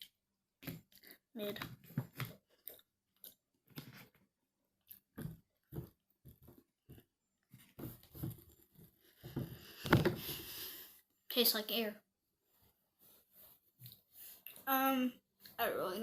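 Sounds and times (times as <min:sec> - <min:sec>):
person chewing candy: 0:00.0 - 0:06.4.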